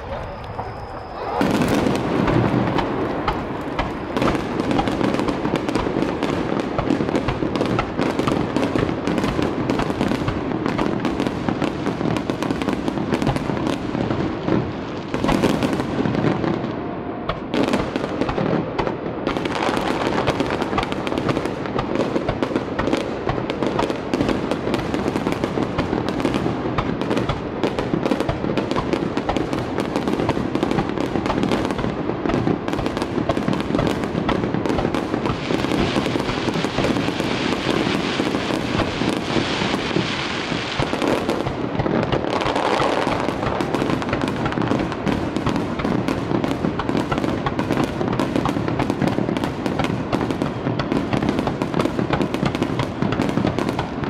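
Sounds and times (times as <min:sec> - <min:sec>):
firework shells bursting and crackling: 0:00.0 - 0:54.0.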